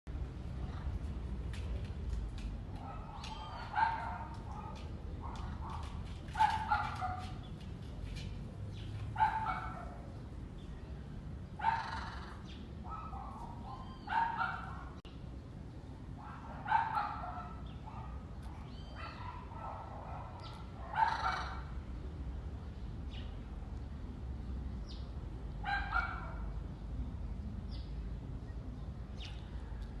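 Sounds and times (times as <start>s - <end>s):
bird calls: 2.8s - 9.9s, 11.6s - 15.0s, 16.8s - 19.4s, 20.2s - 21.7s.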